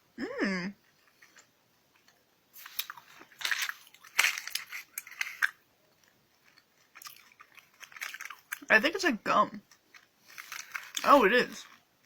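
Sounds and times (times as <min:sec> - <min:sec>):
wet chewing mouth sounds: 0:06.4 - 0:08.7.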